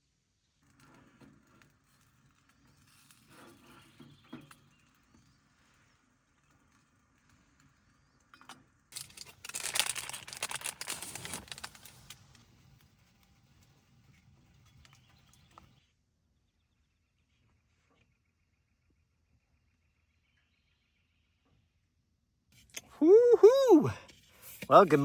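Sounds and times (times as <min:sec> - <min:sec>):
loud crinkling rustle: 0:08.9 - 0:15.8.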